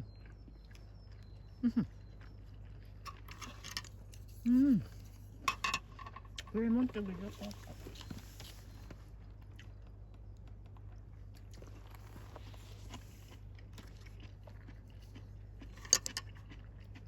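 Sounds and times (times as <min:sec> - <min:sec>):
chewing: 0:00.0 - 0:05.5, 0:06.2 - 0:17.0
tableware tapping: 0:05.5 - 0:06.5.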